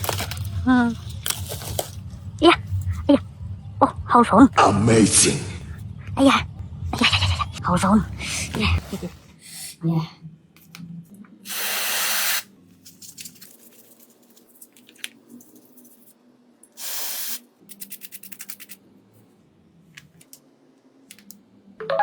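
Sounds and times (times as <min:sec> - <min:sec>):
aerosol spray hissing: 0:11.5 - 0:12.5, 0:16.8 - 0:17.5.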